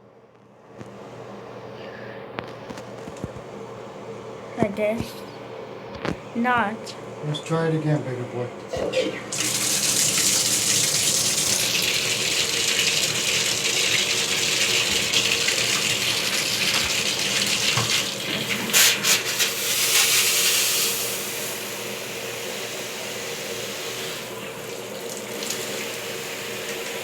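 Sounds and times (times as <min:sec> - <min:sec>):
shower water hissing: 0:09.1 - 0:27.0.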